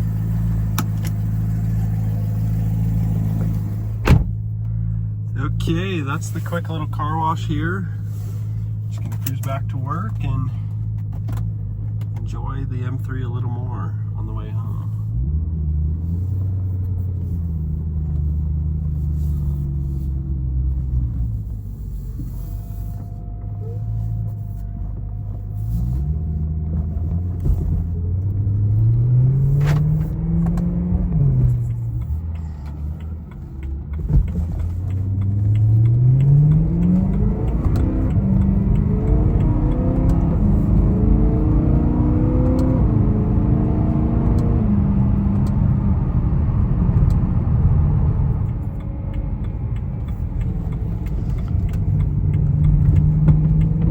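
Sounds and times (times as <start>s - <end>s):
car engine revving: 0.0s - 53.9s.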